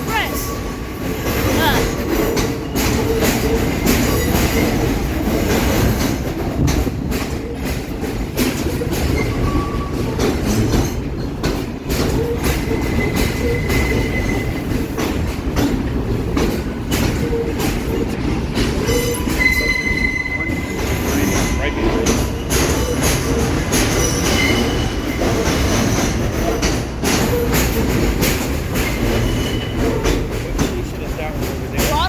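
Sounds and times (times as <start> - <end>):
rumble of train wheels on rail: 0.0 - 32.0
clacks over rail joints: 0.1 - 32.0
faint high wheel squeal: 8.7 - 11.0, 12.0 - 14.9, 18.8 - 28.1, 28.8 - 30.5.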